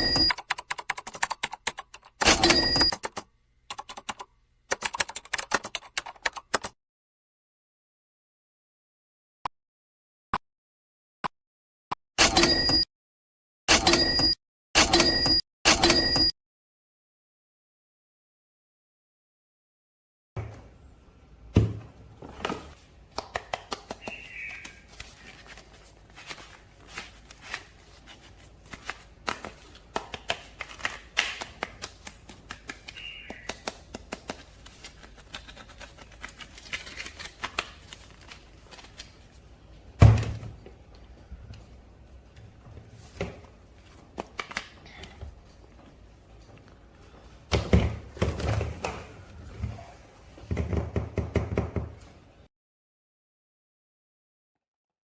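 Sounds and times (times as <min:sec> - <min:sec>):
packaging rustling: 0:22.2 - 0:39.5.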